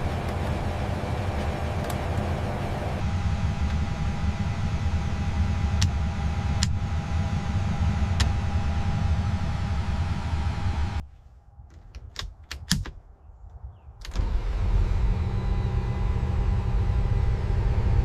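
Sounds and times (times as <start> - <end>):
thin steady whine: 0.0 - 11.0
low engine rumble: 0.0 - 12.0, 14.1 - 18.0.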